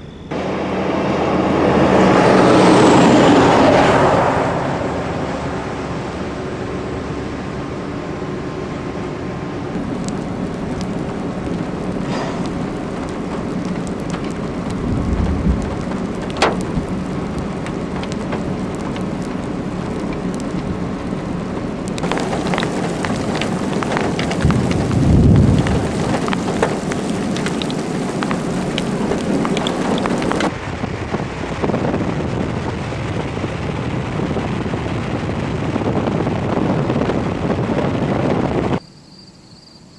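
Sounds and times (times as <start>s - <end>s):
thunder rumbling: 0.0s - 7.1s, 9.6s - 38.8s
heavy rain falling: 0.3s - 38.8s
sharp ticks of raindrops: 9.7s - 30.5s.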